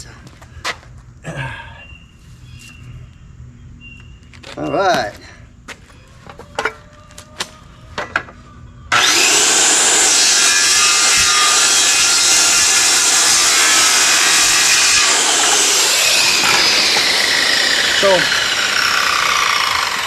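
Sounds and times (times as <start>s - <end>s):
power saw cutting wood: 8.9s - 20.0s.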